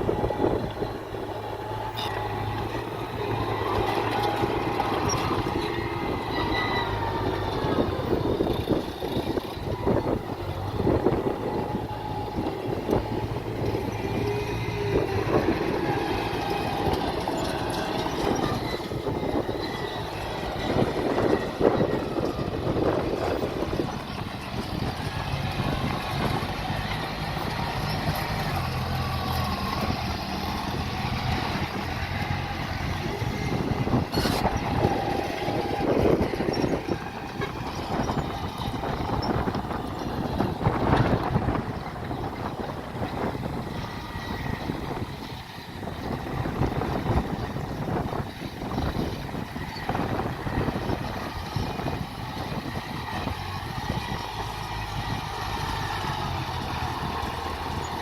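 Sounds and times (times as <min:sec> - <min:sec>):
diesel engines running: 0:00.0 - 0:58.0
steady machinery rumble: 0:00.0 - 0:58.0.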